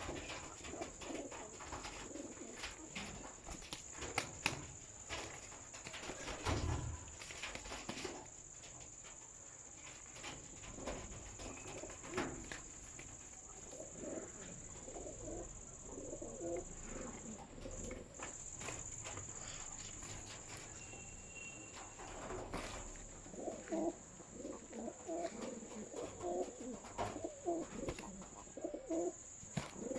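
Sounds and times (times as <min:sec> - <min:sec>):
pigeons cooing: 0:00.0 - 0:04.5, 0:10.2 - 0:20.9, 0:21.7 - 0:29.9.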